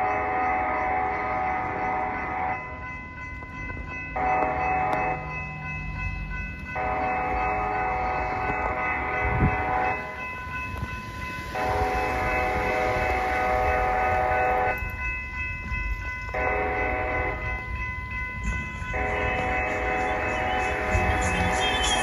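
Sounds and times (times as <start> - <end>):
locomotive air horn: 16.3 - 17.5, 18.9 - 22.0.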